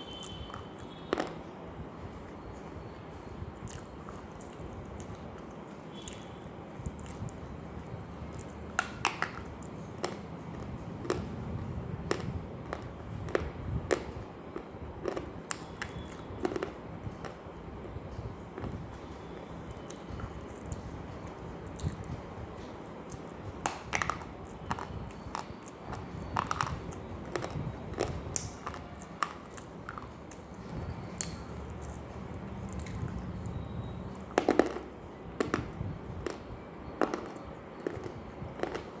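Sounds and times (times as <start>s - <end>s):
person chewing crunchy food: 3.6s - 5.3s, 6.0s - 7.4s, 8.3s - 11.4s, 12.0s - 17.3s, 21.6s - 22.1s, 22.8s - 35.6s, 37.0s - 39.0s.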